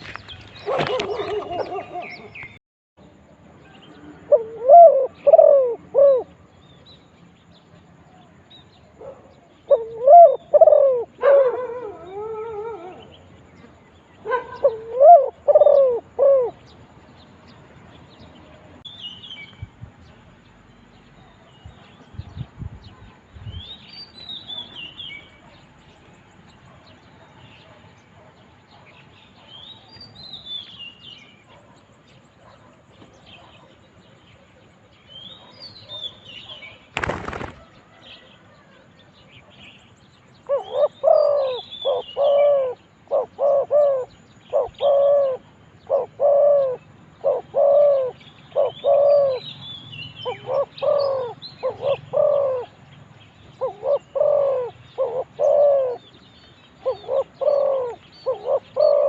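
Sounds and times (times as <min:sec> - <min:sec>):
small birds chirping: 0:00.0 - 0:59.0
dove cooing: 0:00.6 - 0:02.5, 0:03.9 - 0:06.4, 0:09.0 - 0:13.2, 0:14.2 - 0:16.7, 0:40.4 - 0:49.5, 0:50.2 - 0:52.8, 0:53.6 - 0:56.0, 0:56.8 - 0:59.0.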